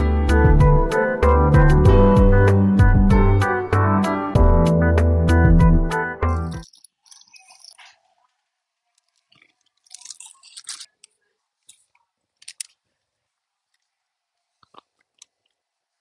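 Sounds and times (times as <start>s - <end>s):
plastic bag crinkling: 8.9s - 12.8s
chewing and crunching crispy snack: 9.0s - 11.0s.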